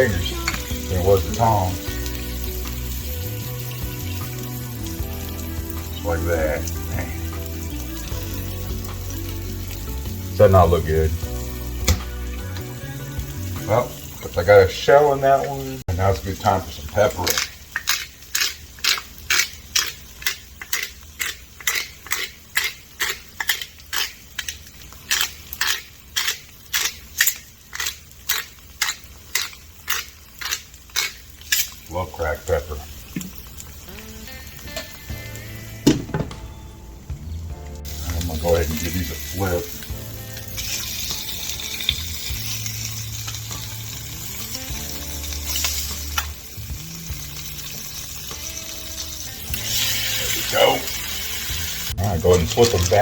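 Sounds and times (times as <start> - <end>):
food sizzling in a pan: 0.0 - 53.0
pepper mill crunching peppercorns: 16.0 - 35.4, 37.9 - 53.0.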